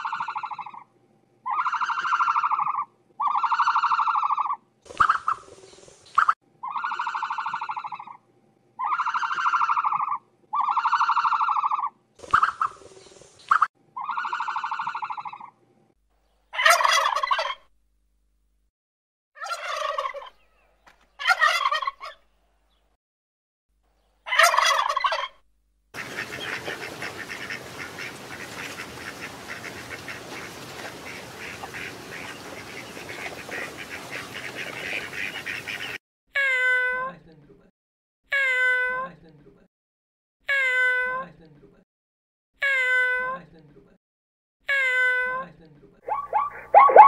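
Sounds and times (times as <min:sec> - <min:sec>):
fowl calling harshly: 0:00.0 - 0:00.8, 0:01.5 - 0:05.5, 0:08.8 - 0:12.8, 0:16.6 - 0:17.6, 0:19.4 - 0:20.4, 0:21.2 - 0:22.2, 0:24.3 - 0:25.4, 0:26.0 - 0:36.0, 0:46.1 - 0:47.0.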